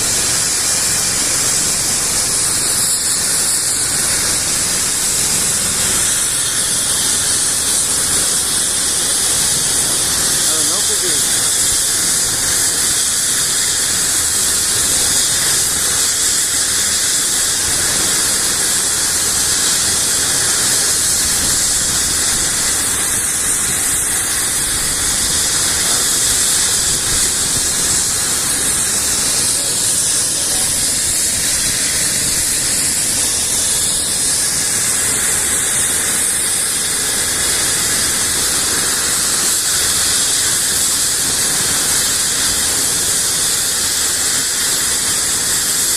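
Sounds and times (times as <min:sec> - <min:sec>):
helicopter turbine engine running: 0:00.0 - 0:45.9.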